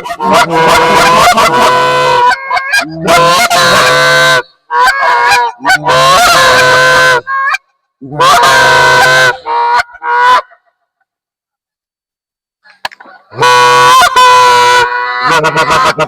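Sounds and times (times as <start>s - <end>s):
goose call honks and clucks: 0.0s - 10.8s, 12.7s - 16.0s.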